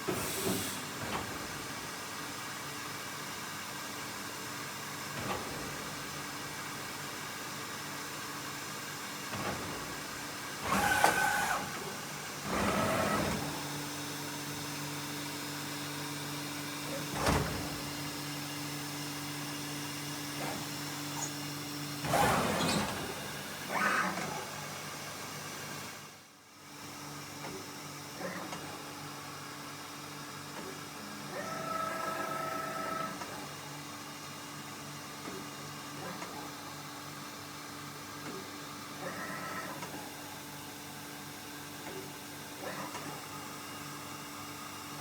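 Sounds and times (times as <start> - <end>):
machine servo traverse moves: 10.6 - 13.6, 22.0 - 24.5.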